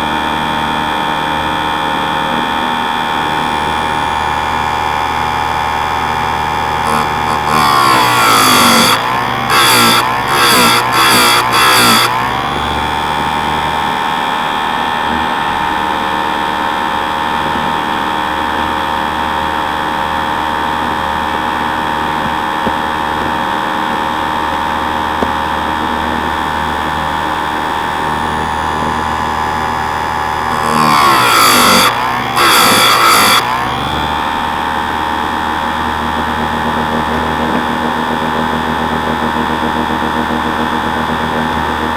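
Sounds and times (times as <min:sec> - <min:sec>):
grinder motor whining: 0:00.0 - 0:41.9
grinding wheel on chain tooth: 0:06.0 - 0:13.4, 0:30.0 - 0:33.9.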